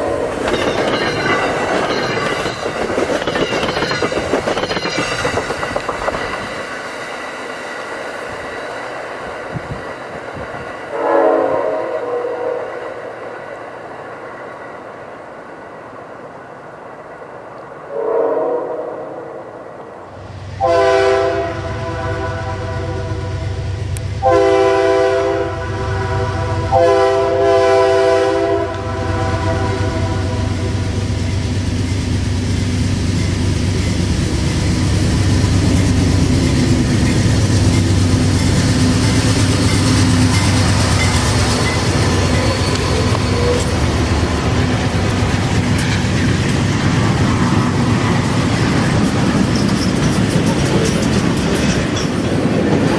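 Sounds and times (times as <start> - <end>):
train rumbling on rails: 0.0 - 52.9
train air horn blasts: 10.9 - 12.8, 17.9 - 19.4, 20.6 - 30.6, 42.1 - 44.0.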